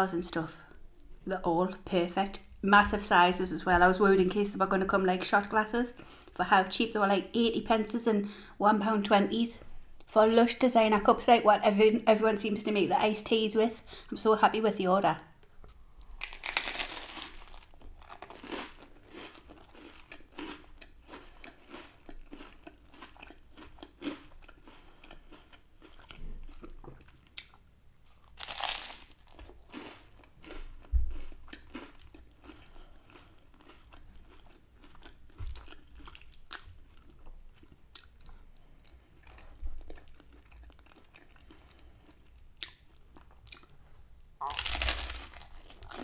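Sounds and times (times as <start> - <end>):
crunching bites into toasted bread: 16.2 - 20.6, 28.3 - 30.6, 44.5 - 46.0
chewing: 17.3 - 43.8.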